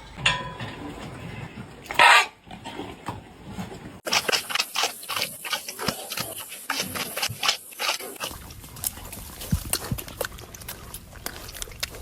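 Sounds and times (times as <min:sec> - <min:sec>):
pig call: 0:01.9 - 0:02.4.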